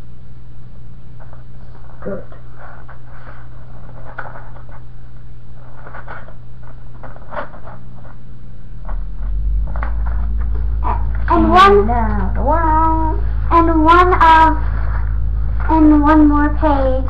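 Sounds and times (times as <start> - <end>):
electrical hum: 0.0 - 17.0
paper pages rustling: 2.6 - 4.8, 5.6 - 8.2
low rumble: 8.5 - 17.0.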